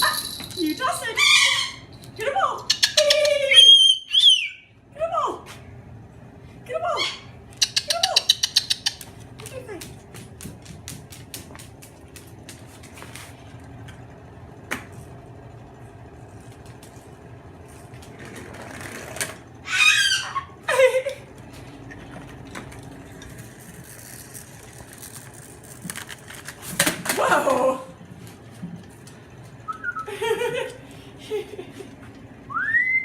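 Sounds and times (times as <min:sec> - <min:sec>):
cockatoo calls: 0:01.2 - 0:01.9, 0:02.7 - 0:04.7, 0:19.6 - 0:20.6.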